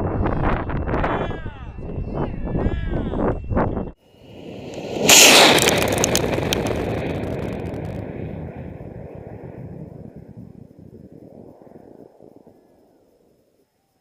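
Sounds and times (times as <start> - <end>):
rocket motor roaring: 4.2 - 9.4.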